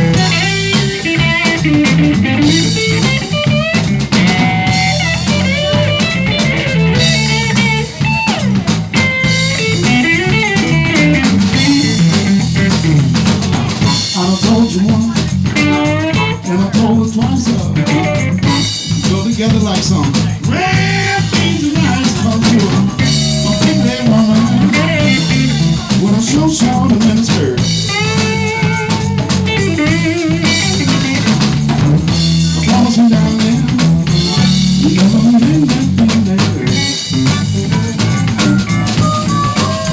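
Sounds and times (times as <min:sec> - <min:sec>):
bending lead guitar line: 0:00.0 - 0:39.9
blues-rock band playing: 0:00.0 - 0:39.9.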